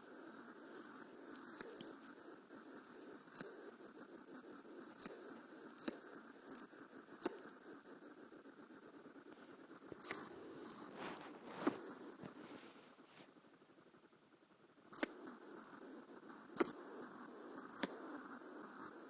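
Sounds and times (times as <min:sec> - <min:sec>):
hedgehog huffing and hissing: 0:00.0 - 0:13.4.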